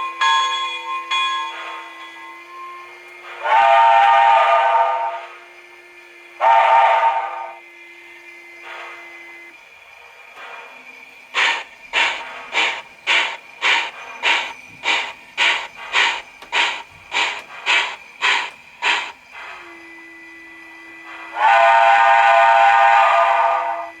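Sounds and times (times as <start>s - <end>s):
chime steam whistle: 0.0s - 5.5s, 6.2s - 9.5s, 11.4s - 24.0s
steam exhaust chuffing: 11.2s - 19.7s
steady low hum: 11.3s - 19.6s.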